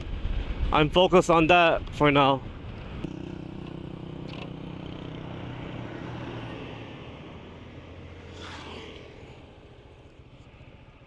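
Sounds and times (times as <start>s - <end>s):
road and wind noise: 0.0s - 11.0s
scooter engine running: 3.1s - 11.0s.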